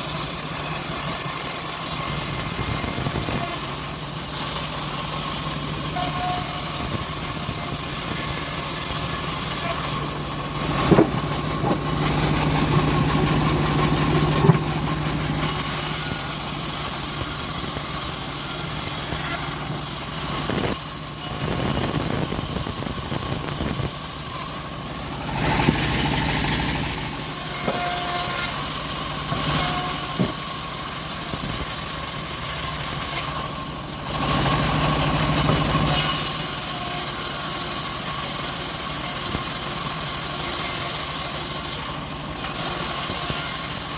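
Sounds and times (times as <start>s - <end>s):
bandsaw sawing logs: 0.0s - 43.9s
sharp knocks: 10.8s - 12.0s, 14.1s - 14.9s.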